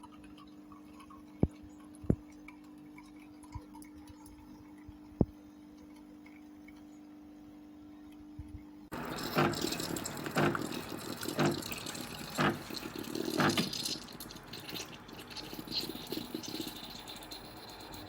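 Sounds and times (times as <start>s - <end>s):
espresso machine hissing steam: 8.9s - 18.0s.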